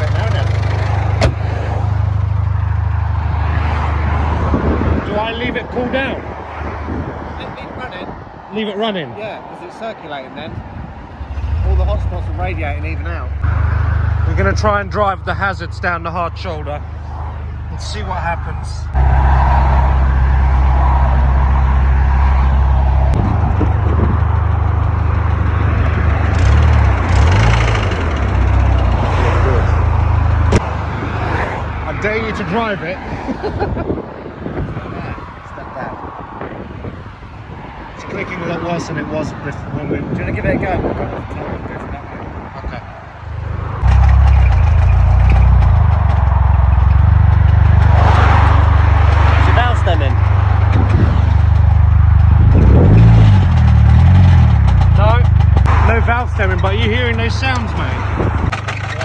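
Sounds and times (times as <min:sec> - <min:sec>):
damaged car engine running: 0:00.0 - 0:03.6, 0:11.0 - 0:19.0, 0:43.4 - 0:59.0.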